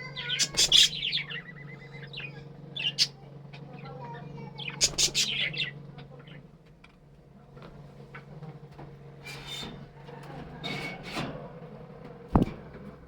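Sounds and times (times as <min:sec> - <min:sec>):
budgerigars chirping: 0:00.0 - 0:06.5
steady low hum: 0:00.0 - 0:13.0.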